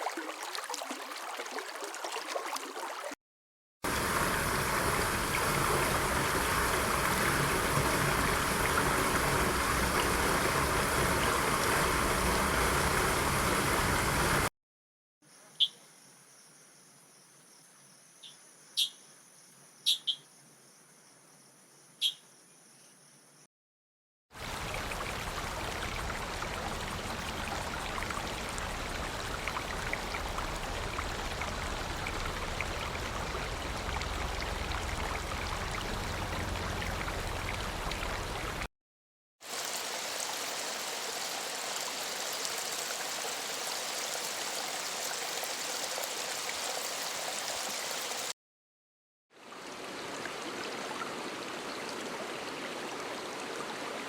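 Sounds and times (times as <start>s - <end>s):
stream water rushing: 3.9s - 14.5s, 24.4s - 38.7s, 39.5s - 48.3s, 49.4s - 54.0s.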